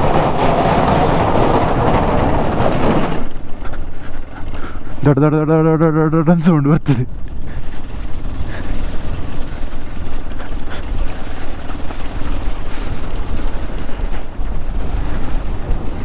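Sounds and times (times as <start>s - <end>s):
wind buffeting microphone: 0.0s - 6.2s, 7.0s - 16.0s
motorcycle engine running: 7.1s - 16.0s.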